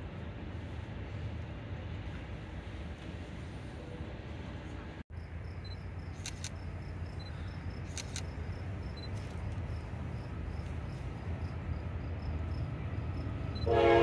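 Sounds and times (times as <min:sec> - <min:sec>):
distant train rumble: 0:00.0 - 0:14.0
insects chirping: 0:05.1 - 0:13.8
sharp clicks: 0:07.9 - 0:08.4.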